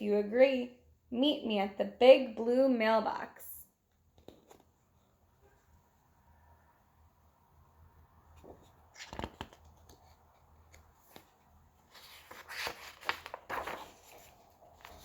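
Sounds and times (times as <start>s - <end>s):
paper pages rustling: 8.4s - 15.0s.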